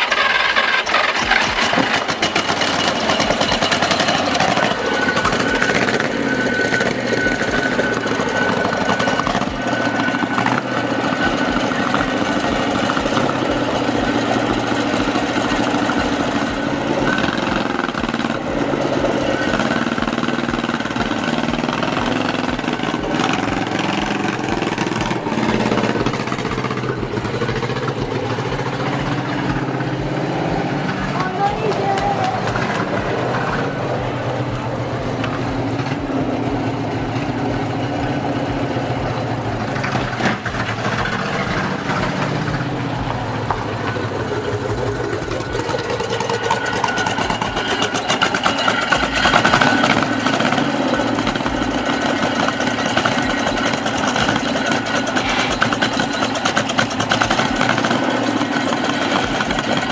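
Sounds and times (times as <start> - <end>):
old engine running: 0.0 - 59.9.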